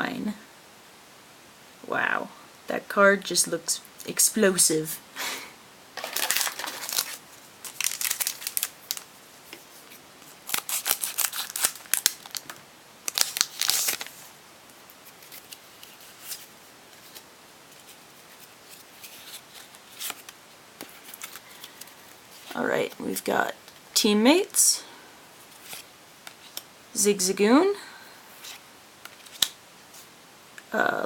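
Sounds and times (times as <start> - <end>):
foil wrapper crinkling: 6.0 - 9.1, 10.2 - 17.2, 17.8 - 22.6
cards being handled: 6.0 - 12.5, 15.0 - 23.0, 28.4 - 29.6.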